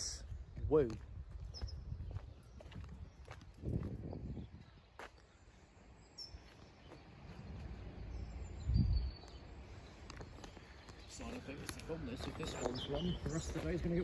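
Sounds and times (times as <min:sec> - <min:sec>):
wind rumble on microphone: 0:00.0 - 0:05.1, 0:07.2 - 0:14.0
faint bird chirps: 0:01.4 - 0:07.4.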